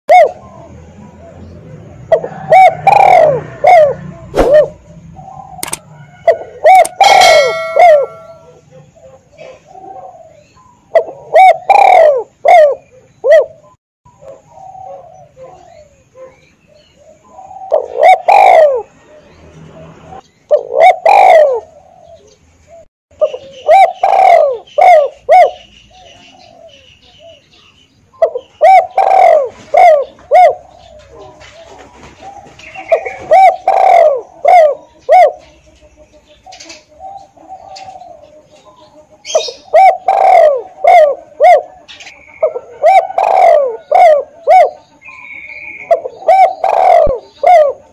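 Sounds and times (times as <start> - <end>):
dove cooing: 0.1 - 1.3, 2.0 - 16.4, 17.0 - 18.9, 20.5 - 27.4, 28.2 - 35.6, 36.5 - 47.9.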